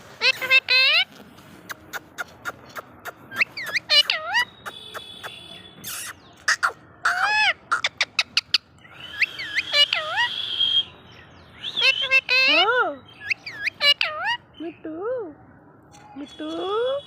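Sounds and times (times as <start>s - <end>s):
parrot calling: 0.2s - 1.1s, 1.9s - 10.7s, 11.6s - 14.5s.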